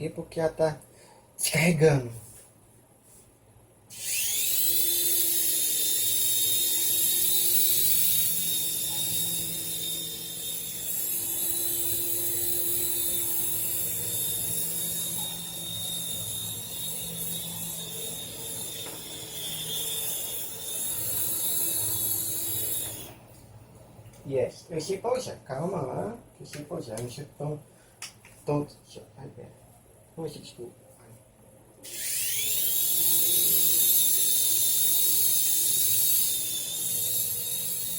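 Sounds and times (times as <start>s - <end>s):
toy helicopter rotor motors whining: 3.9s - 23.3s, 31.8s - 37.9s.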